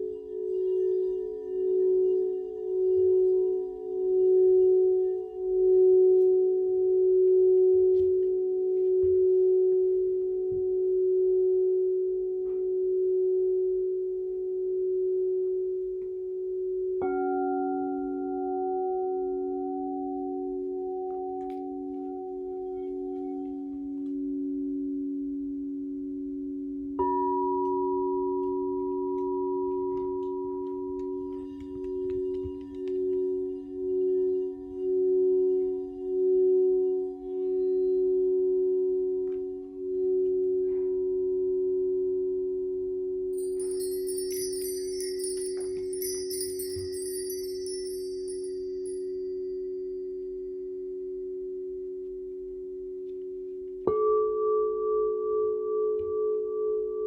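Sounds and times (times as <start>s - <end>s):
crystal singing bowls ringing: 0.0s - 13.8s, 16.6s - 51.7s
singing bowl struck: 43.4s - 49.8s
high bright chimes: 43.4s - 50.2s.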